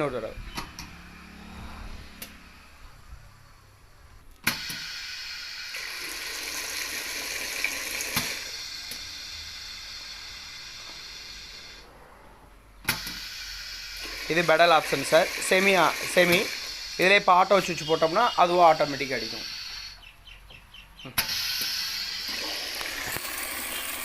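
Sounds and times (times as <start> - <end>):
liquid pouring from nozzle: 5.1 - 8.5, 14.0 - 17.2, 21.7 - 24.0.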